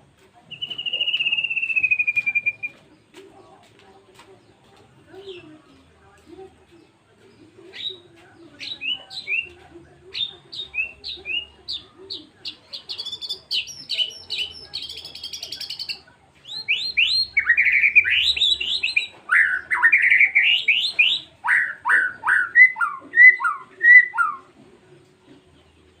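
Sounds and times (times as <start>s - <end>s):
songbird singing whistled notes: 0.5s - 3.1s, 7.2s - 24.6s
bird chattering phrases: 7.6s - 24.5s.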